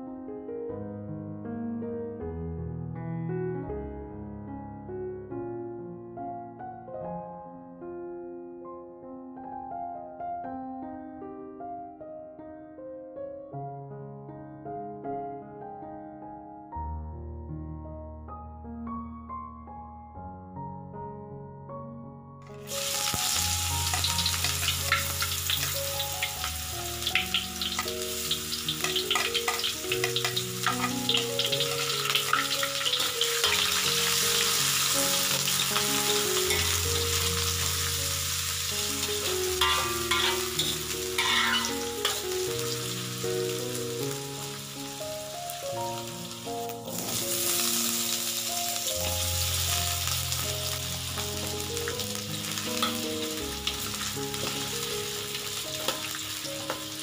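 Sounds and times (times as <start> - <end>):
soft background music: 0.0 - 57.0
aromatics sizzling in hot oil: 22.5 - 57.0
spatula scraping a wok: 36.4 - 36.9, 39.6 - 42.2.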